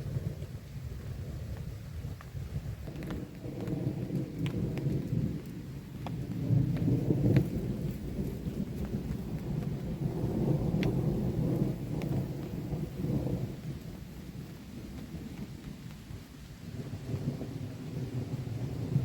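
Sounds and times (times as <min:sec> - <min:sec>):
raindrops ticking on a tarp: 0:00.0 - 0:19.0
steady rain: 0:00.0 - 0:19.0
rolling thunder: 0:02.4 - 0:16.0, 0:16.6 - 0:19.0.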